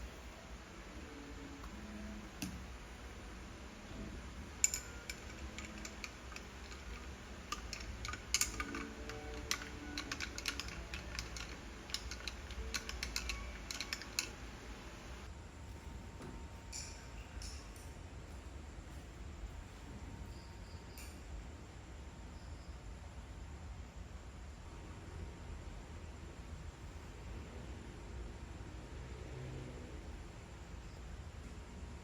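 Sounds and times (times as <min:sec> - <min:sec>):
laptop keyboard typing: 0:04.6 - 0:15.3.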